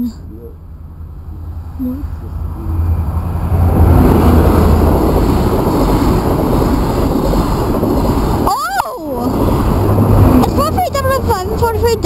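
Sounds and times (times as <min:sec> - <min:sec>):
train passing at speed: 0:00.6 - 0:12.0
wheels on rails: 0:03.5 - 0:12.0.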